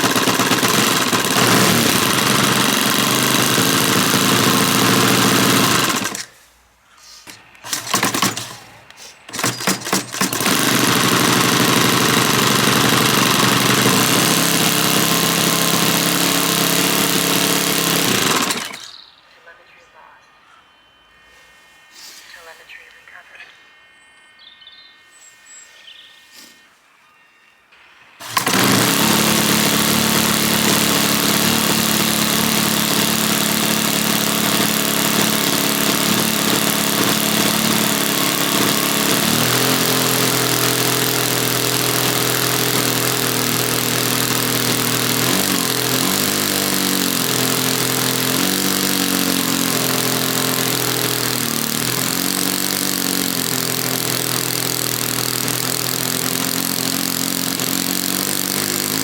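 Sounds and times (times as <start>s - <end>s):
model airplane engine running: 0.0s - 6.3s, 7.3s - 19.0s, 28.2s - 59.0s.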